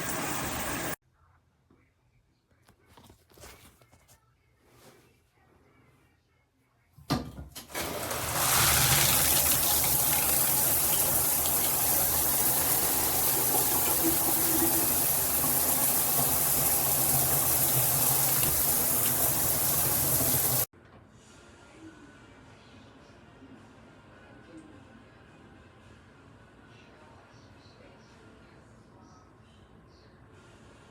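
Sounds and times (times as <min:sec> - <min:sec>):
shower head spraying water: 0:07.7 - 0:20.7.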